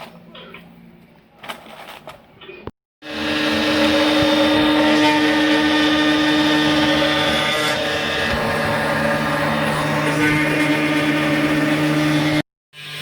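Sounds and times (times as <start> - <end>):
spindle motor whining: 3.0 - 13.0.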